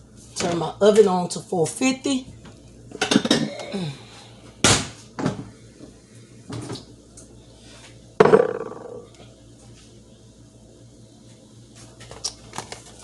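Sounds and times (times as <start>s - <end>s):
dishes knocking: 8.2s - 9.0s.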